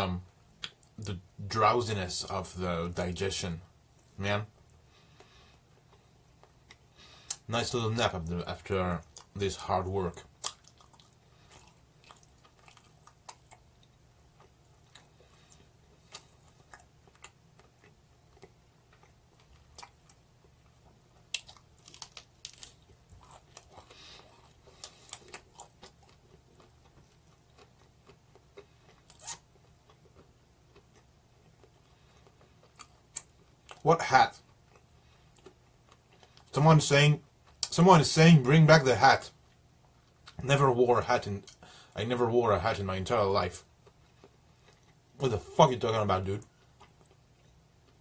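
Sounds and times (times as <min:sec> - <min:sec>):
low room hum: 0:00.0 - 0:48.0
chewing crunches and mouth clicks: 0:10.1 - 0:33.8, 0:34.4 - 0:36.5, 0:43.6 - 0:45.1, 0:46.4 - 0:48.0.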